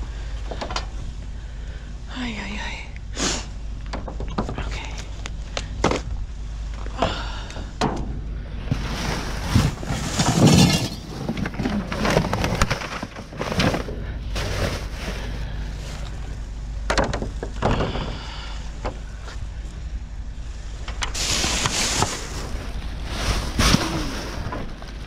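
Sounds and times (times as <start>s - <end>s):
rummaging through trash: 8.6s - 16.4s, 21.1s - 25.0s.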